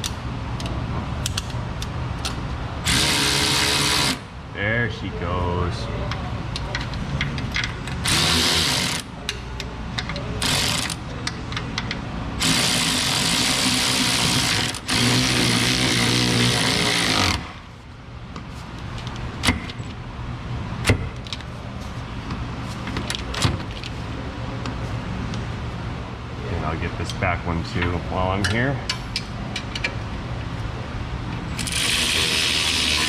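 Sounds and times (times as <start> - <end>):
power tool driving bolts: 2.8 - 4.2, 7.6 - 9.0, 10.4 - 11.0, 12.4 - 17.5, 31.6 - 33.0.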